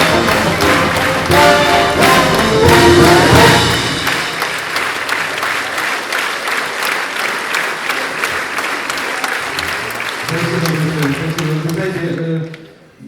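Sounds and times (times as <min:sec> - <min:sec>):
orchestra chord: 0:00.0 - 0:04.6
audience applause: 0:00.0 - 0:12.6.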